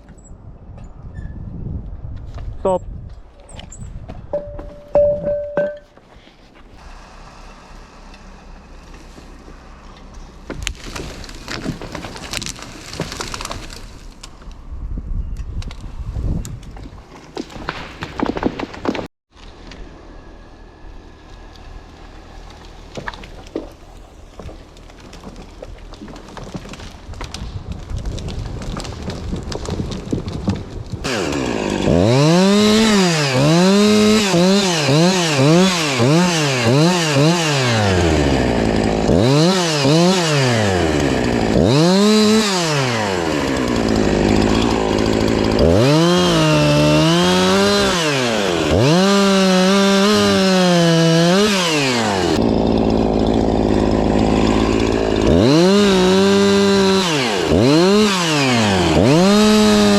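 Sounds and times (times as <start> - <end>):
chainsaw engine revving: 31.0 - 59.9.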